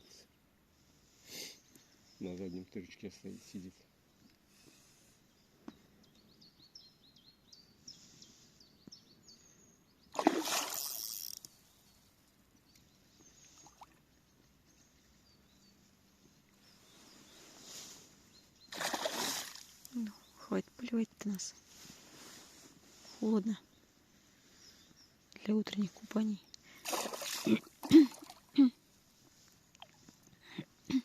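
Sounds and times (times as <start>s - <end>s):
small birds chirping: 0.2s - 31.0s
water splashing: 10.2s - 11.1s, 18.7s - 19.9s, 26.8s - 28.5s.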